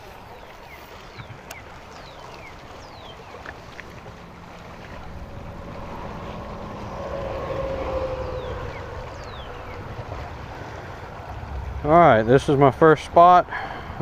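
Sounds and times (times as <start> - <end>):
boat motor humming: 0.0 - 14.0
wind on microphone: 0.0 - 14.0.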